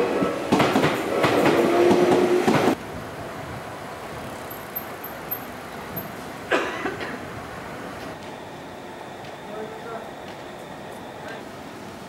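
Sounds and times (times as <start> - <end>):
street background: 0.0 - 12.0
train wheels clattering: 0.5 - 2.8.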